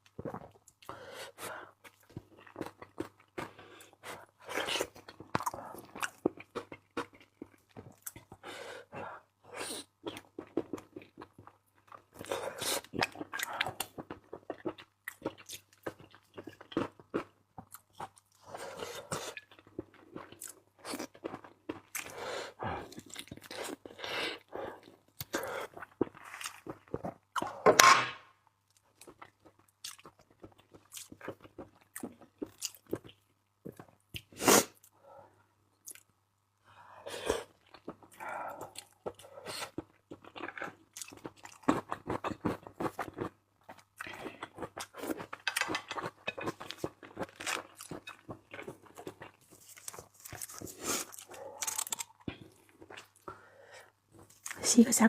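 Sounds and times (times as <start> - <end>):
chewing and crunching seafood: 0.0 - 27.7, 28.6 - 55.0.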